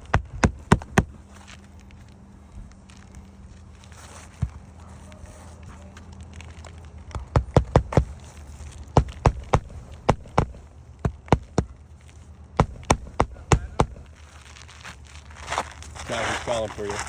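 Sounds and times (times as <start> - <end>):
hammer striking roofing nails: 0.0 - 1.2, 7.1 - 8.3, 8.9 - 11.8, 12.6 - 14.2.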